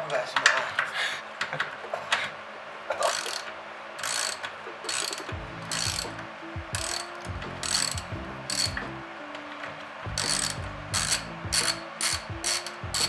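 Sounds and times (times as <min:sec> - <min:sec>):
ratchet wrench clicking: 0:03.0 - 0:09.0, 0:10.1 - 0:13.0.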